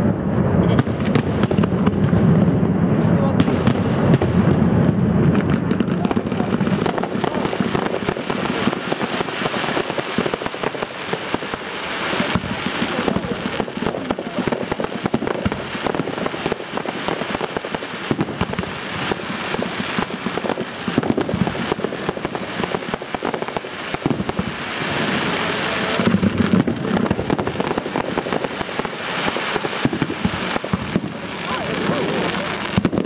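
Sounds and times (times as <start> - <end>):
fireworks bangs and crackling: 0.0 - 33.0
rushing hiss: 5.5 - 32.9.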